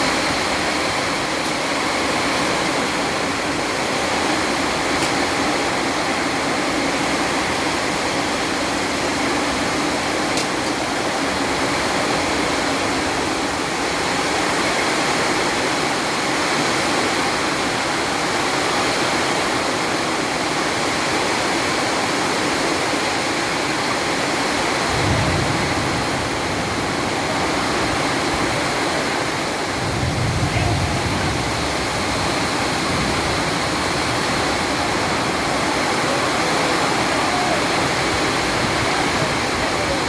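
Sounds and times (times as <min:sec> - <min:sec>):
heavy rain pouring: 0:00.0 - 0:40.0
low thunder rumble: 0:24.8 - 0:28.7, 0:29.5 - 0:37.1.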